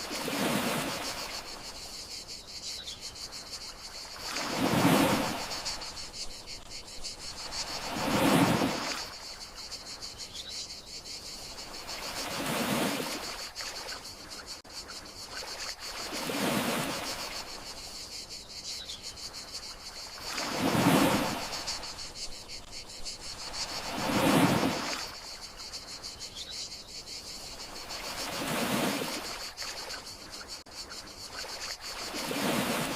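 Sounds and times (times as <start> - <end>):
gentle sea waves washing ashore: 0.0 - 2.0, 3.4 - 10.0, 11.4 - 17.9, 19.6 - 25.8, 27.3 - 30.6, 31.2 - 32.9
crickets chirping: 0.0 - 32.9.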